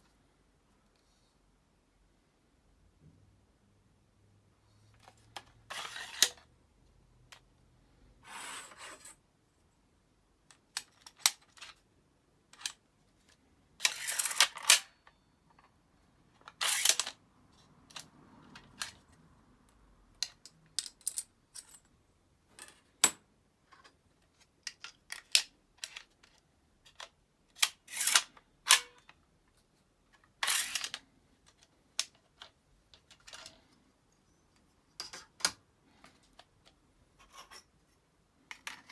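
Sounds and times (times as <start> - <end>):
plastic parts clicking and snapping: 24.4 - 29.2.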